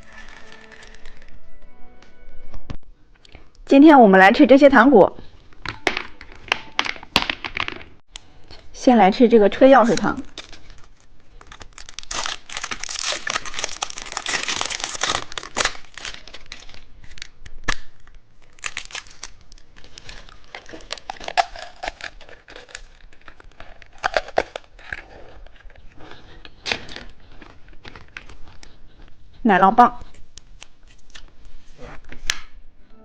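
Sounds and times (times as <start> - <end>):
plastic wrapper crinkling: 0.0 - 1.6, 9.8 - 29.2.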